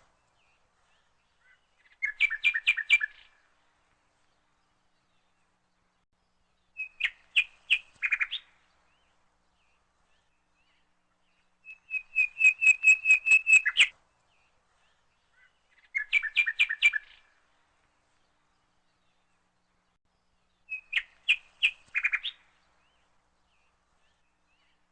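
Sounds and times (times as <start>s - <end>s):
bird chirping trilled phrases: 9.6s - 13.9s, 14.8s - 17.3s.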